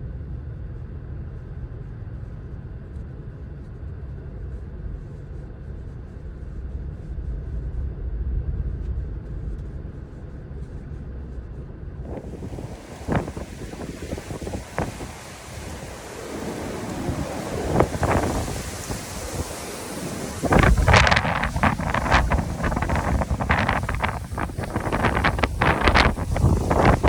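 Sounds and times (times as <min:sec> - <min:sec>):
wind buffeting microphone: 0:07.4 - 0:27.0.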